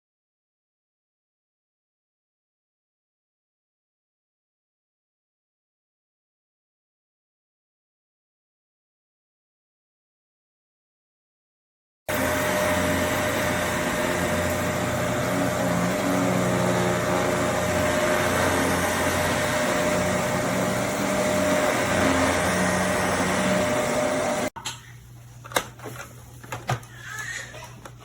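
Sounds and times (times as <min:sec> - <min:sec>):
vacuum cleaner running: 0:12.1 - 0:24.6.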